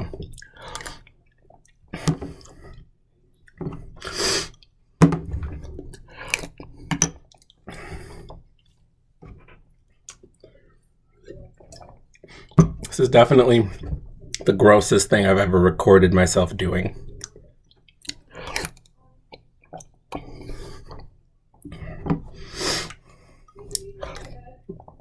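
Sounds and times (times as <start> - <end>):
wet mouth sounds eating: 5.9 - 7.8, 17.1 - 21.1.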